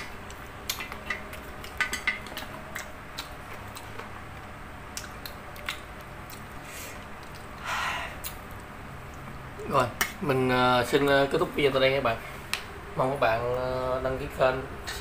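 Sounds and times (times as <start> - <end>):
crunchy chewing: 0.0 - 7.6.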